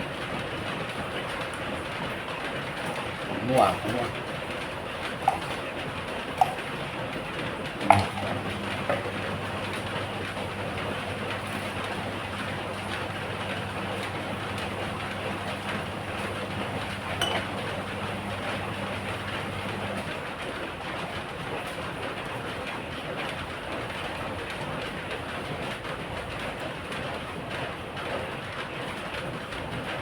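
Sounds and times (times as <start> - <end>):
low steady hum: 7.8 - 20.1.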